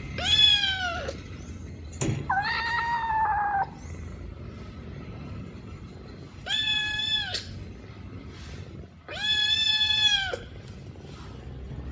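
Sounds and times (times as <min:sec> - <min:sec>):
kitten meowing: 0:02.3 - 0:03.8, 0:09.1 - 0:10.5.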